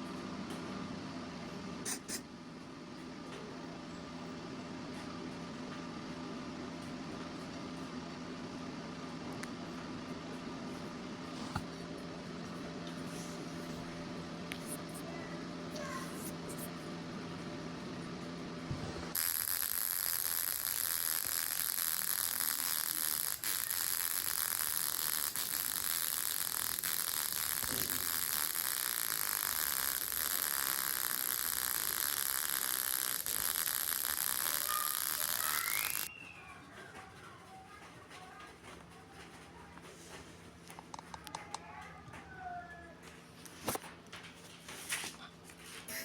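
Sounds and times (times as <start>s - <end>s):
welding arc crackling and sizzling: 19.0s - 36.1s
high-pitched whine: 19.2s - 36.1s.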